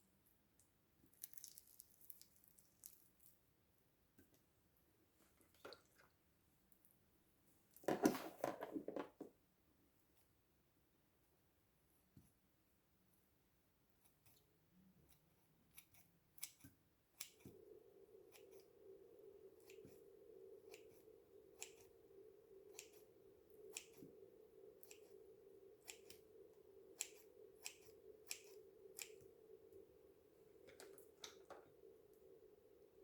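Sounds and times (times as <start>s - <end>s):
steady low hum: 16.3s - 33.0s.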